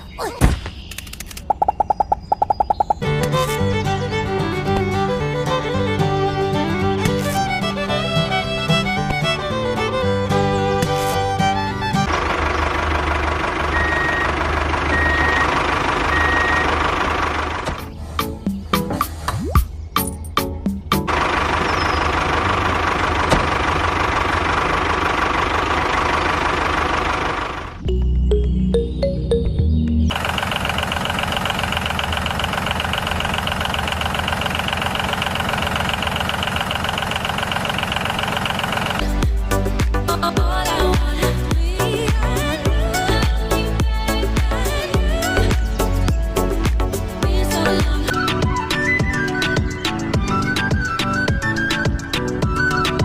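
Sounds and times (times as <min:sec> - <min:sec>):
vehicle engine running: 0:01.4 - 0:19.2, 0:20.8 - 0:28.5, 0:30.1 - 0:48.6
music: 0:03.0 - 0:12.1, 0:17.8 - 0:21.2, 0:27.8 - 0:30.1, 0:39.0 - 0:53.0
small engine idling with knocking: 0:12.1 - 0:17.8, 0:21.1 - 0:27.8, 0:30.1 - 0:39.5
reversing alarm beeping: 0:13.7 - 0:16.8.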